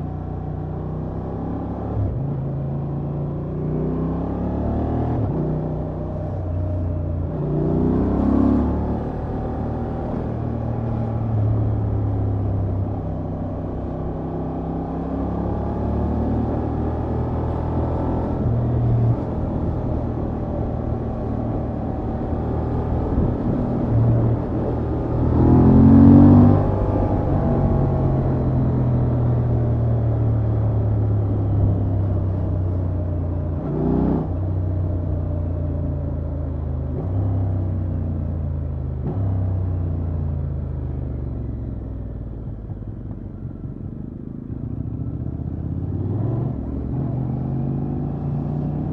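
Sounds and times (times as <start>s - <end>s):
motorcycle engine accelerating: 0.3s - 48.9s.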